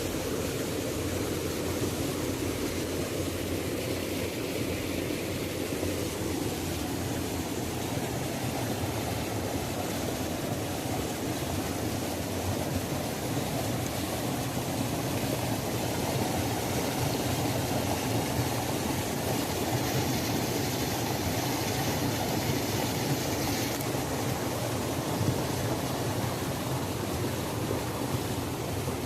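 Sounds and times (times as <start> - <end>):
waterfall roaring: 0.0 - 29.0.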